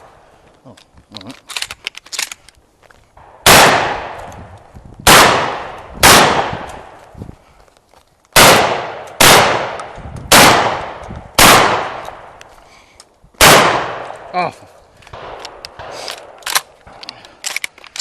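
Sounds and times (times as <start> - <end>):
shotgun shots: 3.2 - 4.3, 5.0 - 7.0, 8.4 - 12.3, 13.4 - 14.3, 15.2 - 16.7.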